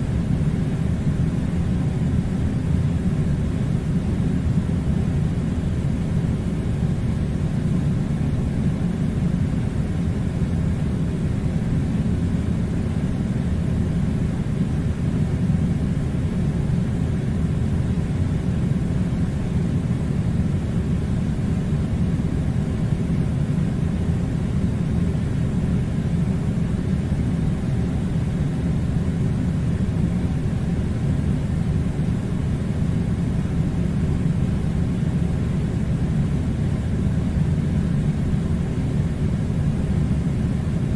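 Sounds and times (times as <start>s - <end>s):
steady low mechanical rumble: 0.0s - 40.9s.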